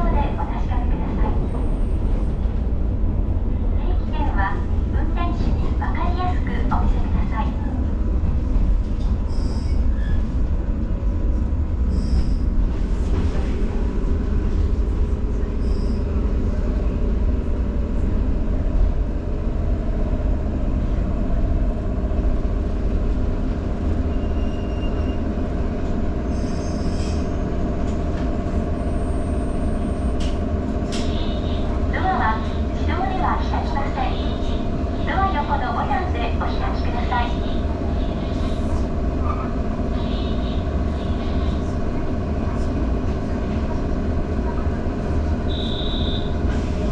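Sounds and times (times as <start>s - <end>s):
train wheels rumbling on rails: 0.0s - 46.9s
brief high squeaks: 9.3s - 10.2s, 11.9s - 12.4s.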